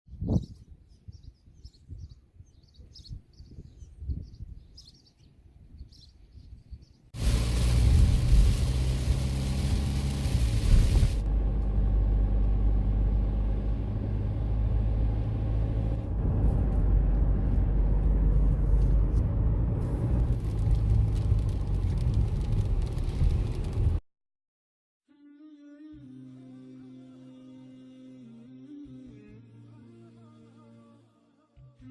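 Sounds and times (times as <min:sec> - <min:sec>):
loud rushing noise: 0:07.2 - 0:11.3
low rumble: 0:07.2 - 0:24.0.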